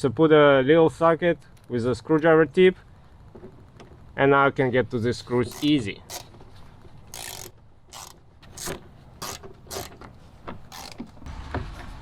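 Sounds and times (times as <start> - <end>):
hand ratchet clicking: 5.4 - 6.4, 7.1 - 10.1, 10.7 - 11.1.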